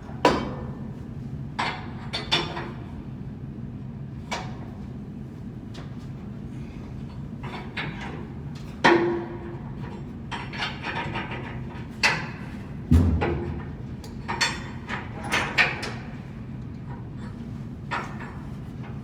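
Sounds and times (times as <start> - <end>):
heavy thud: 12.9 - 13.7.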